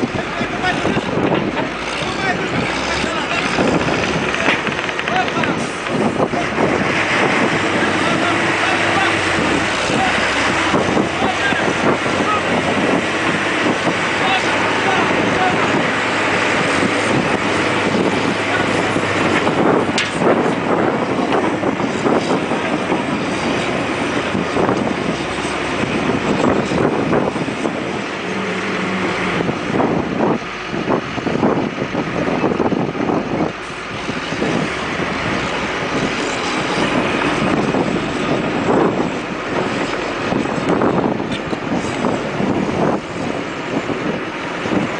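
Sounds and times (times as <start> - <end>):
diesel truck engine under load: 0.0 - 44.9
wind buffeting microphone: 0.0 - 44.9.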